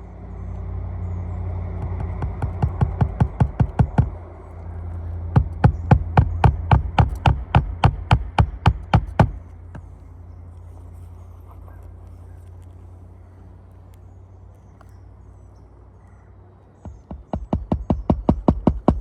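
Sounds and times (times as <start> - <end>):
steady low hum: 0.0 - 19.0
rapid hammer strikes: 1.8 - 4.2, 5.3 - 9.4, 16.8 - 19.0.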